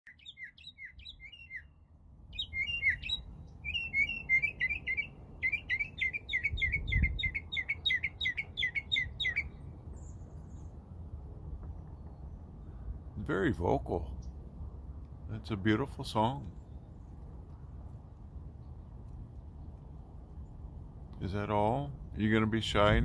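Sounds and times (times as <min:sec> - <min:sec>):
mockingbird singing: 0:00.1 - 0:10.7.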